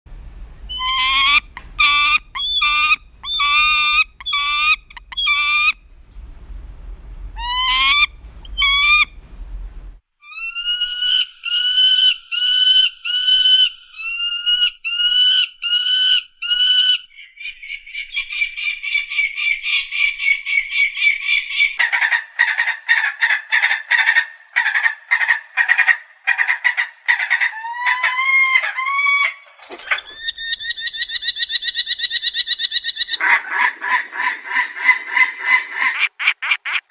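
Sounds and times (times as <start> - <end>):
falcon calling harshly: 0.7 - 5.8, 7.4 - 9.1, 21.9 - 36.8.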